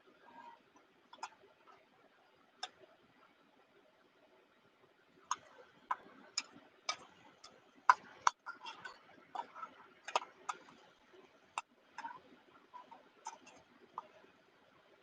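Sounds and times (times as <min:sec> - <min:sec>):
sharp irregular clicks and taps: 0:00.2 - 0:03.0, 0:05.2 - 0:14.4.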